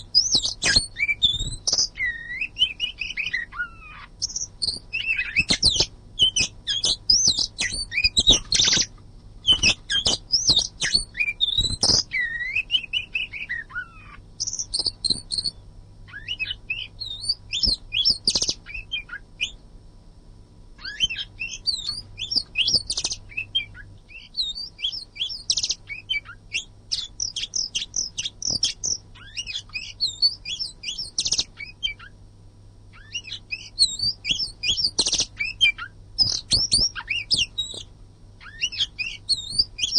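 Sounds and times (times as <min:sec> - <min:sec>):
bird singing chirps and trills: 0:00.0 - 0:19.6, 0:20.8 - 0:32.2, 0:32.9 - 0:39.9
faint low hum: 0:00.0 - 0:39.9.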